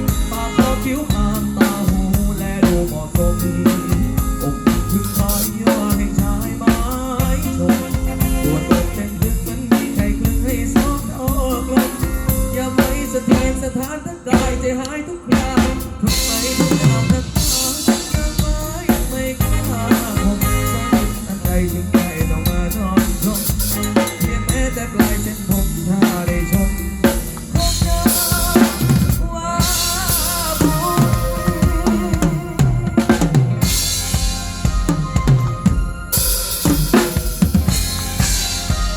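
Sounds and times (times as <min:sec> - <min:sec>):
drum kit beat: 0:00.0 - 0:38.9
live band instrumental: 0:00.0 - 0:38.9
melody line: 0:29.7 - 0:38.9.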